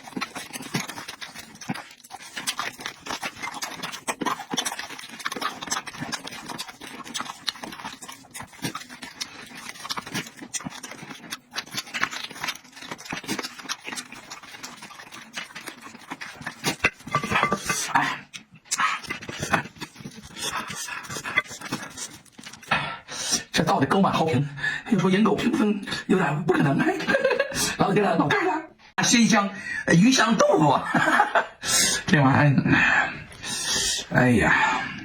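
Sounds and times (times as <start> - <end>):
person chewing food: 0.0 - 24.4, 33.0 - 34.1.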